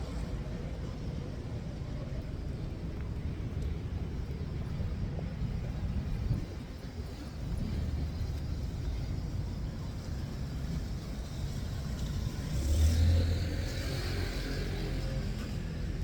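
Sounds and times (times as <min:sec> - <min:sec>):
traffic rumble: 0:00.0 - 0:16.0
car passing with tyre hiss: 0:07.1 - 0:16.0.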